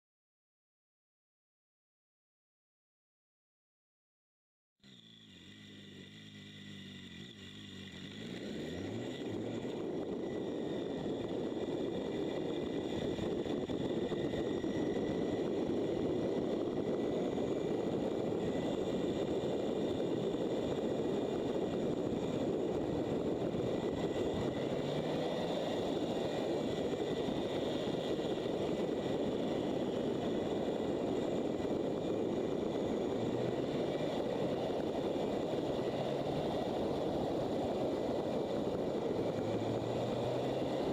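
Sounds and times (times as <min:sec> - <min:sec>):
motorcycle engine: 0:04.8 - 0:40.9
wind rush: 0:09.2 - 0:40.9.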